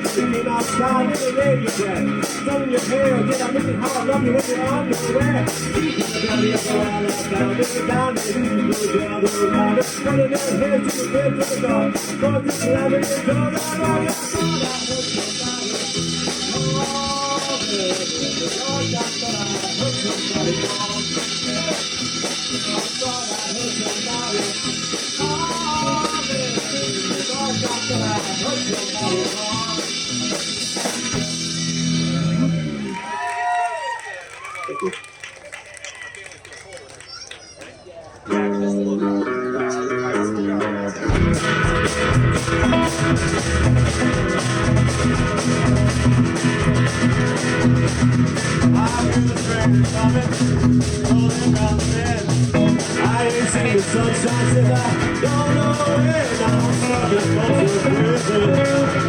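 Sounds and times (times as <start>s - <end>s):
rock band playing: 0.0s - 33.6s, 38.3s - 59.0s.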